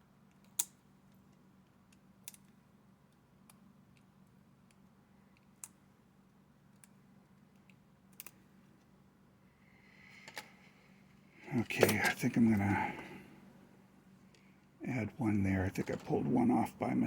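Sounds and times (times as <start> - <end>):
steady low hum: 0.0 - 17.0
faint clicks of small parts: 0.2 - 9.0, 10.0 - 13.1, 14.2 - 14.8.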